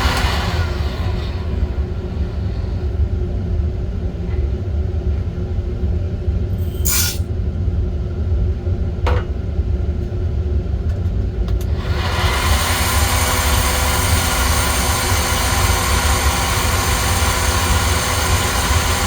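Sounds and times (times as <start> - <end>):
brief hiss: 6.7 - 7.2.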